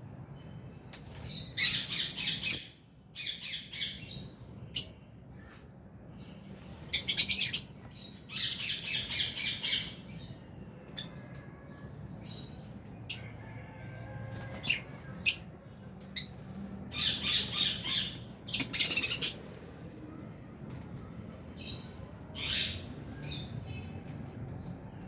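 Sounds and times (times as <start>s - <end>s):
birds squawking and chirping: 1.0s - 5.7s, 6.3s - 19.8s, 20.9s - 25.0s.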